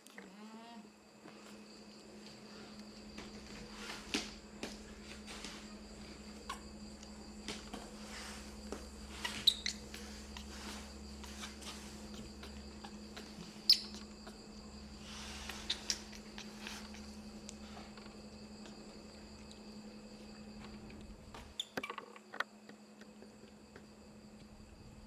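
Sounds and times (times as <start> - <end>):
steady low hum: 0.8 - 21.6
baby monkey squeaking: 9.0 - 14.4, 15.0 - 17.2.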